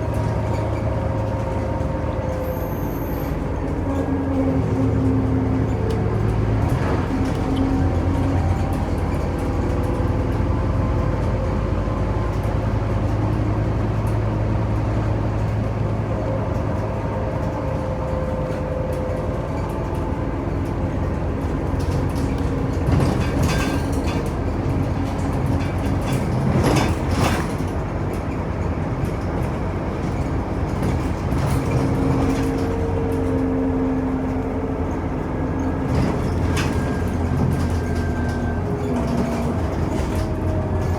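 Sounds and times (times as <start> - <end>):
bus engine hum: 0.0 - 40.9
rattles and knocks: 21.4 - 33.4.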